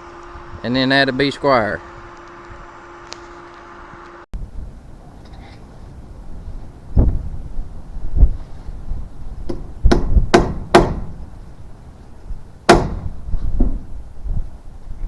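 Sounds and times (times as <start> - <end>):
hammer blows on wood: 9.4 - 11.3, 12.7 - 13.8.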